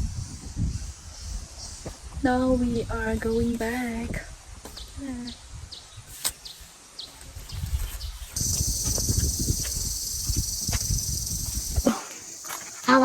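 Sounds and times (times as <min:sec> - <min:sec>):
steady high-pitched hiss: 0:00.0 - 0:13.0
high bird chirps: 0:04.8 - 0:13.0
low thumps: 0:08.4 - 0:12.3.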